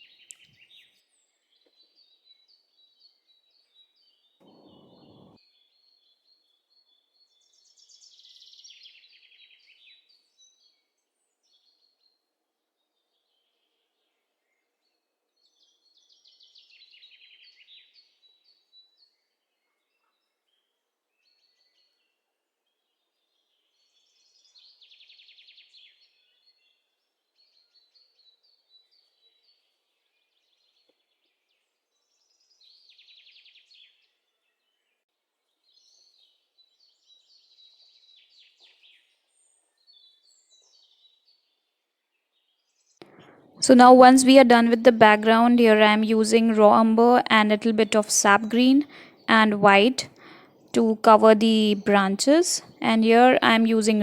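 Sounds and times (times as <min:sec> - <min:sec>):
bird chirps: 0:04.4 - 0:05.4
faint bird trills: 0:04.4 - 0:05.4.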